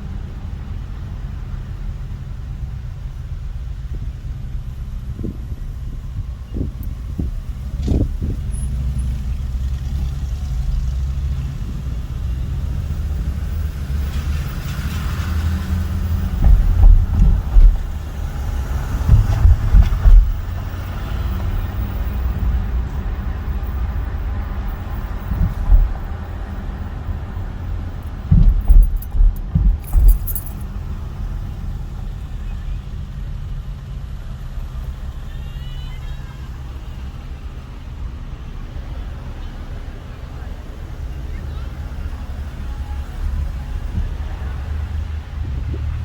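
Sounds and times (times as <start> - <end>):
car road rumble: 0.0 - 46.0
loud low thuds: 15.7 - 21.7, 24.6 - 30.8.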